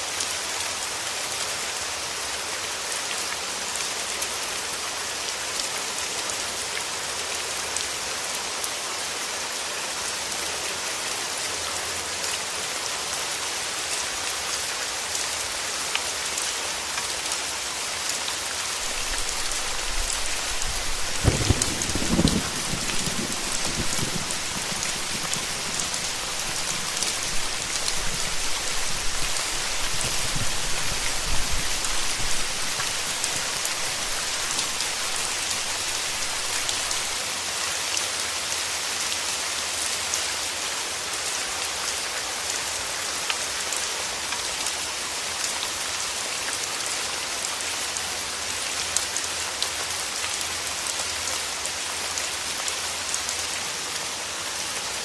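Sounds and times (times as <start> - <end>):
heavy rain pattering: 1.8 - 38.8.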